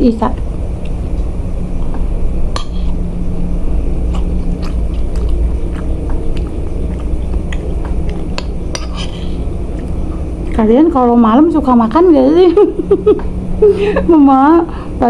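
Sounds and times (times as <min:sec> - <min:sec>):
steady low hum: 0:00.0 - 0:15.0
close-up chewing: 0:04.0 - 0:10.6
metal spoon scraping a plate: 0:08.7 - 0:09.4.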